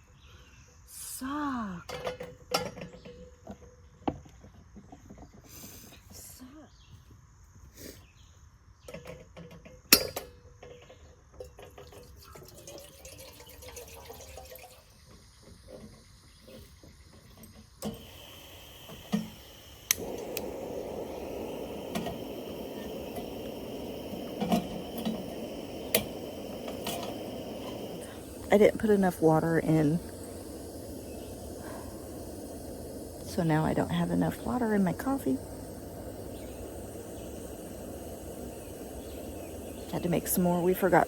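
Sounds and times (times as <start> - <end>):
water pouring and dripping: 11.4 - 15.8, 17.8 - 41.0
steady rushing hiss: 14.0 - 41.0.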